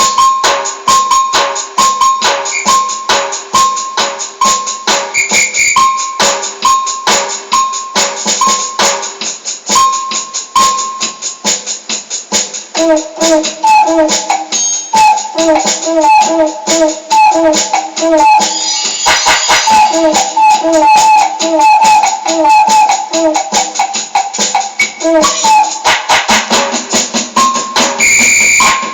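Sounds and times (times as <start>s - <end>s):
electronic keyboard notes: 0.0s - 8.9s, 9.7s - 11.4s, 12.8s - 23.8s, 24.8s - 25.9s
shaken percussion rattling: 0.0s - 28.9s.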